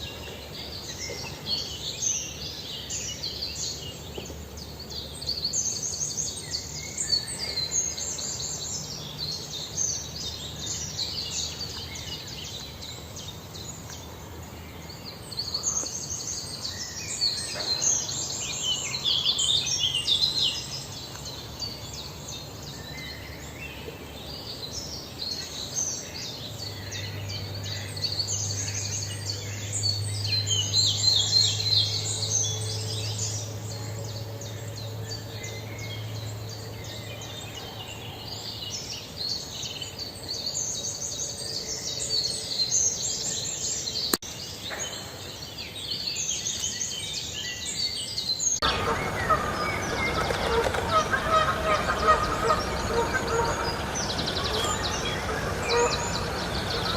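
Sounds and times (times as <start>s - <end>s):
small birds chirping: 0.0s - 56.9s
low steady hum: 48.6s - 56.9s.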